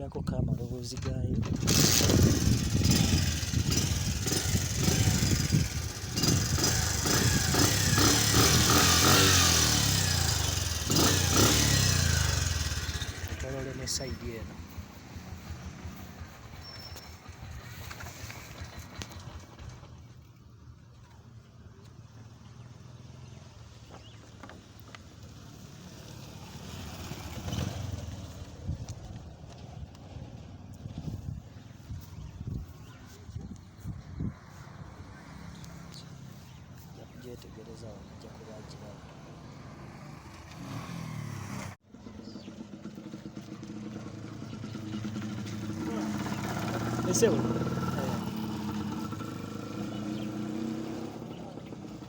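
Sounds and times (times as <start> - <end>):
motorcycle engine revving: 1.4 - 20.0, 25.2 - 33.2, 34.2 - 52.0.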